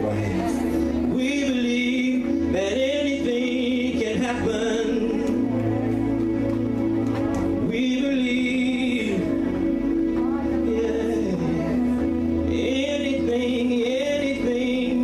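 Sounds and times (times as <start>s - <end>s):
gospel instrumental accompaniment: 0.0s - 15.0s.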